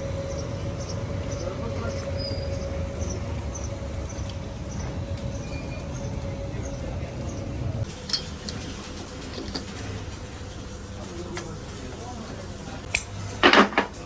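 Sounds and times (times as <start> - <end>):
machine hum with whine: 0.0 - 13.4
tools clinking on metal: 7.9 - 9.9.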